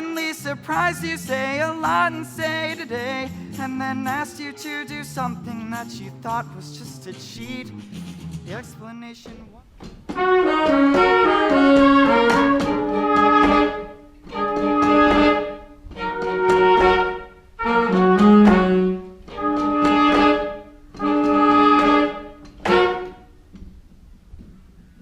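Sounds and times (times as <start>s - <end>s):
orchestra playing held chords: 10.2s - 23.2s.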